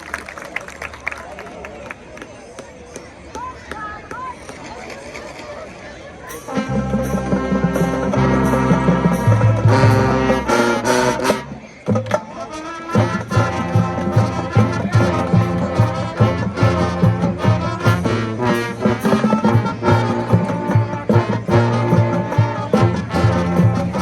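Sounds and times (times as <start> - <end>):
marching band playing: 6.2 - 24.0.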